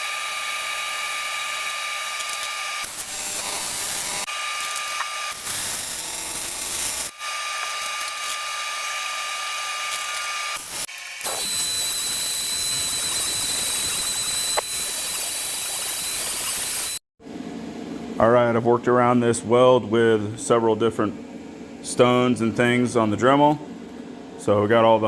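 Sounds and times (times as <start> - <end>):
rotary tool grinding metal: 0.0 - 17.0.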